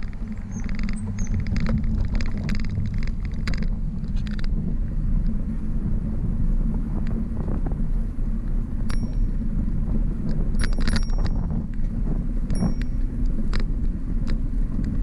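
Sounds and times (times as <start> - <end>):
bicycle road noise: 0.0 - 15.0
wind buffeting microphone: 0.0 - 15.0.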